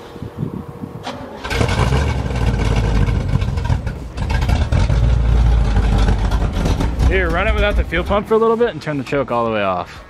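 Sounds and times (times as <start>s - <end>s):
car engine revving: 1.3s - 8.4s.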